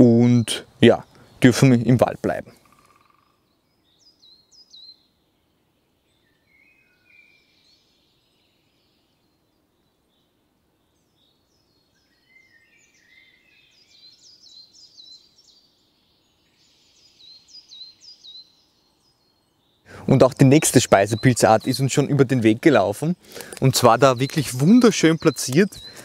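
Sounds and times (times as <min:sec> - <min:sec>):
faint background hiss: 0:00.0 - 0:26.0
small birds singing: 0:00.0 - 0:26.0.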